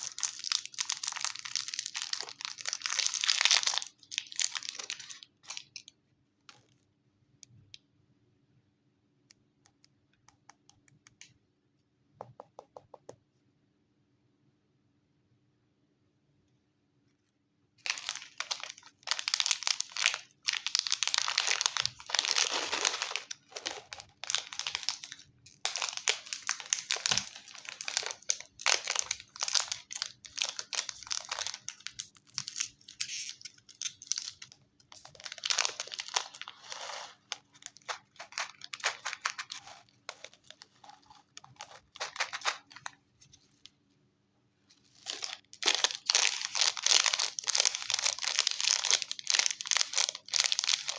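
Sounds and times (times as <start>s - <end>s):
chocolate wrapper crinkling and tearing: 0.0s - 5.9s, 17.8s - 43.0s, 44.8s - 50.9s.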